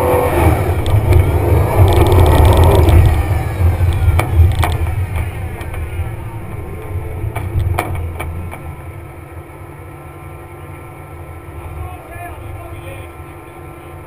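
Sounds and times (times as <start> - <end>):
car engine running: 0.0 - 14.0
sharp knocks: 7.3 - 8.7.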